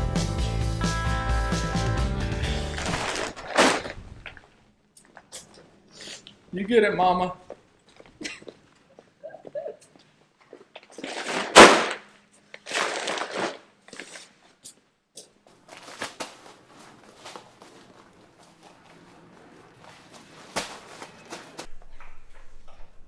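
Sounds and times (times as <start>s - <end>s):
sack rustling: 2.6s - 4.2s, 11.0s - 12.0s, 12.7s - 14.3s, 15.5s - 21.7s
sack landing with heavy thump: 2.7s - 4.0s, 11.5s - 12.0s, 19.8s - 21.7s.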